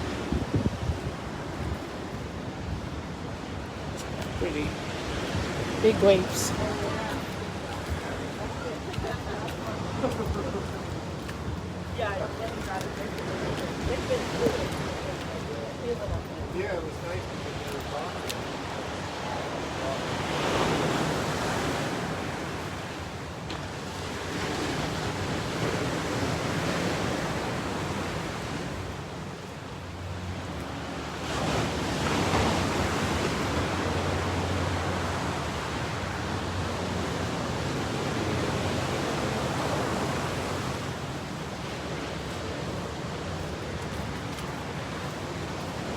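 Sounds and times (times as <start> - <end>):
ocean waves breaking: 0.0 - 45.9.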